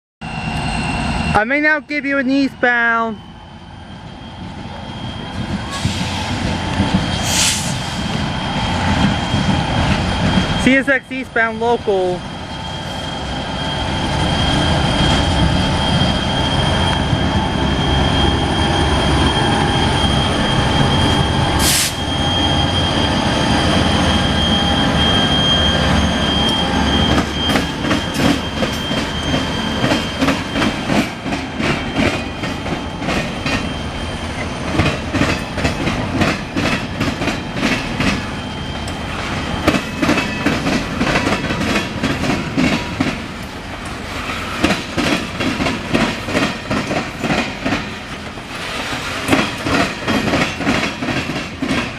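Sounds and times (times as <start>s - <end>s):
high wheel squeal: 0.2s - 51.6s
freight train rumble: 0.2s - 51.9s
wheels clacking over rail joints: 34.4s - 51.9s.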